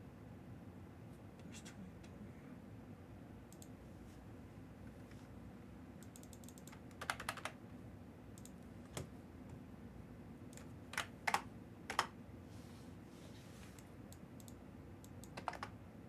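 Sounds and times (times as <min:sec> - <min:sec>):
keyboard typing: 0:06.0 - 0:07.6, 0:08.4 - 0:09.1, 0:10.5 - 0:12.2, 0:13.8 - 0:15.8.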